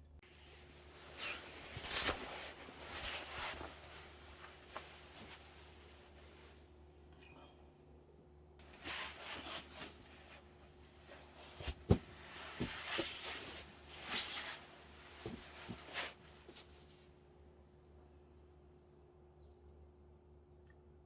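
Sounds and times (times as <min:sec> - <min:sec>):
rustling and handling: 0:00.3 - 0:06.8, 0:08.6 - 0:17.2.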